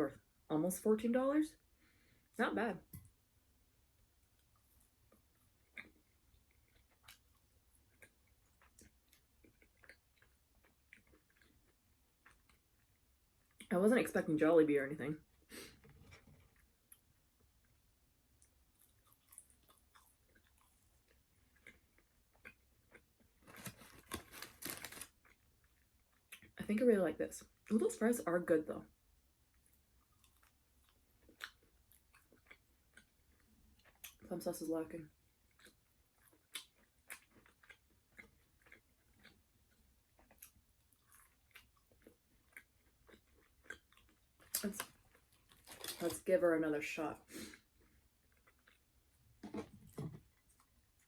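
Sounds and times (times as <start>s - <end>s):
person chewing fried food: 4.2s - 13.7s, 18.4s - 26.5s, 29.5s - 34.3s, 35.2s - 46.1s, 47.4s - 49.6s.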